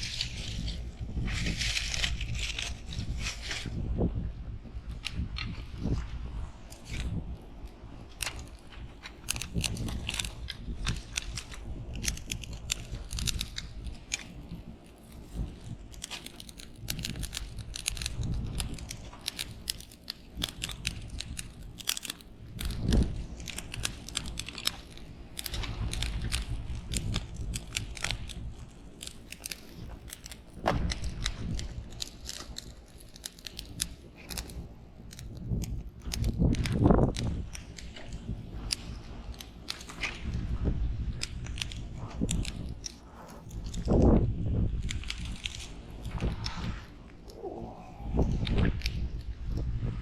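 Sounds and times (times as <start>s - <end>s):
crackling and snapping clicks: 0.0s - 3.8s, 6.7s - 50.0s
low rumble: 40.4s - 50.0s.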